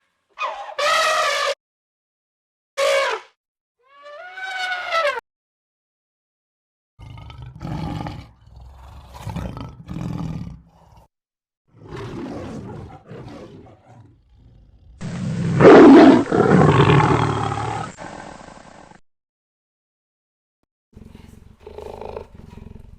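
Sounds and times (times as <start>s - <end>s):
deep roar: 7.0s - 11.0s, 11.8s - 18.9s
big cat growling: 7.0s - 11.1s, 11.7s - 19.0s, 21.0s - 22.9s.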